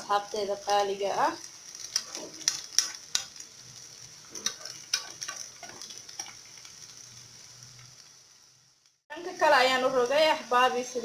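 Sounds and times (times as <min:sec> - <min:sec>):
potato pancake sizzling in oil: 0:00.0 - 0:11.0
metal spoon scraping a pan: 0:04.3 - 0:06.5.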